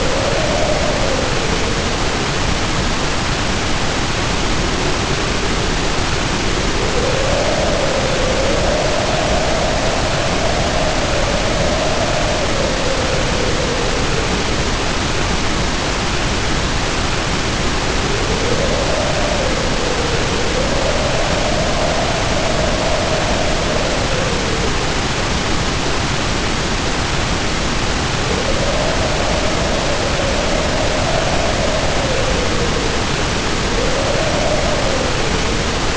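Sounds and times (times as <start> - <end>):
heavy rain pouring: 0.0 - 35.9
wind howling: 0.0 - 35.9.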